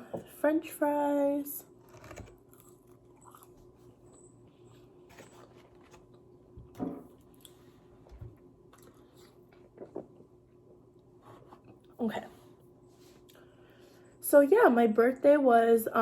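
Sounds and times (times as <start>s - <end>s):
faint steady hum: 0.0s - 16.0s
person chewing food: 1.8s - 6.3s, 7.1s - 7.9s, 8.6s - 10.2s.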